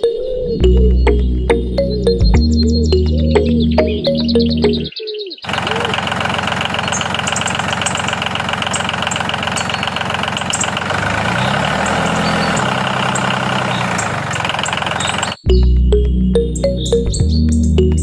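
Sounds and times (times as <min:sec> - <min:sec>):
tractor engine idling: 0:05.5 - 0:15.4.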